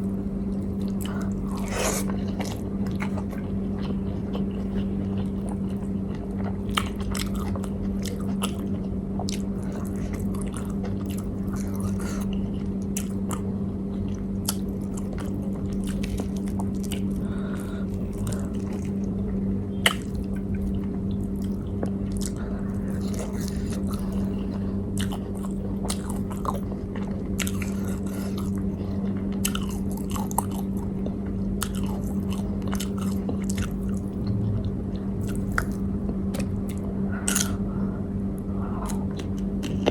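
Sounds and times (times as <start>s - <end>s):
person chewing food: 0.0s - 39.9s
steady low hum: 0.0s - 39.9s
crunchy bites: 19.8s - 20.7s.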